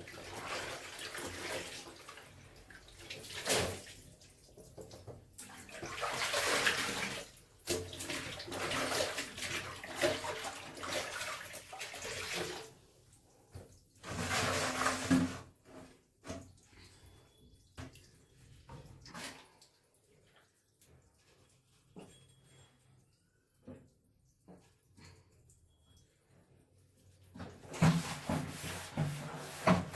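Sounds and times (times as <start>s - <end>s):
water splashing from hand washing: 0.0s - 12.9s.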